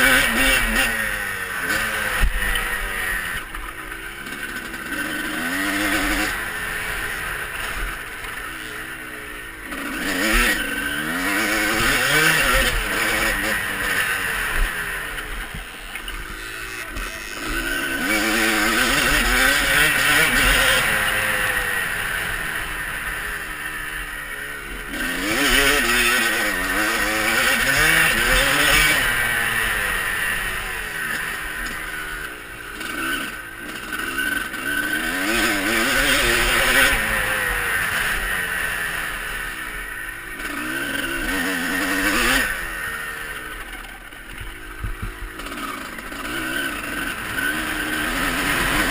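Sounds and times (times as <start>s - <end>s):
motocross bike engine revving: 0.0s - 48.9s.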